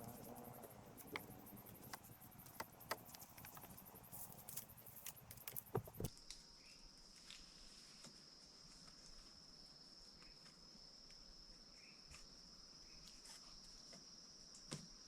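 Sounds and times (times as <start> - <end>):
light clicks and knocks: 0.0 - 6.1.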